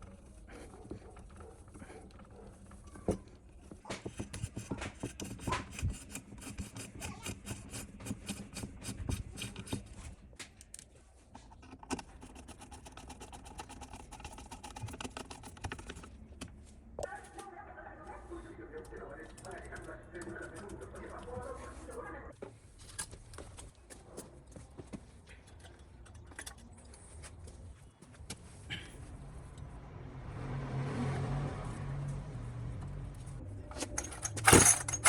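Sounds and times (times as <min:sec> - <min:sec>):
hand tool scraping: 0:00.0 - 0:10.2, 0:33.7 - 0:35.0.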